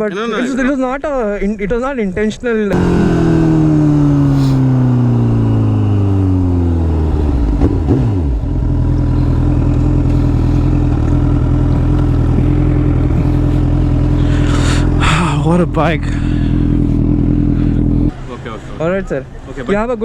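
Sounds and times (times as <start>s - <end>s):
motorcycle engine revving down: 2.7s - 18.1s.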